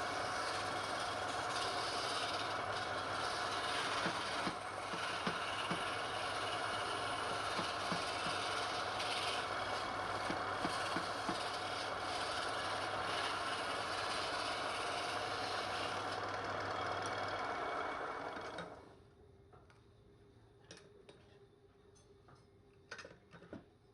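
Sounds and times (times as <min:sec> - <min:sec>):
wood lathe motor humming: 0:00.0 - 0:18.8.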